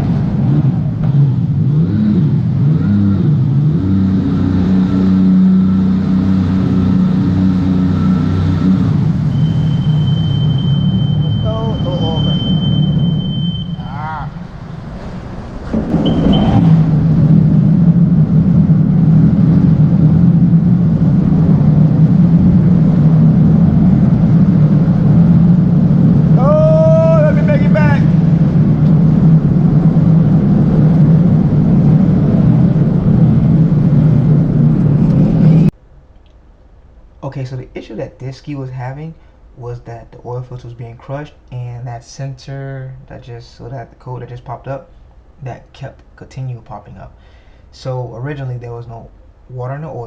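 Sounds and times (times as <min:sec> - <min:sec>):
jet ski engine running: 0:00.0 - 0:35.7.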